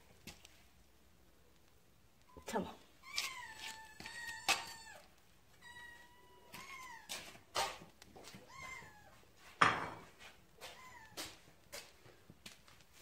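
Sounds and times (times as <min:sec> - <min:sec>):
cats meowing: 0:03.0 - 0:07.4, 0:08.2 - 0:09.3, 0:10.6 - 0:11.4.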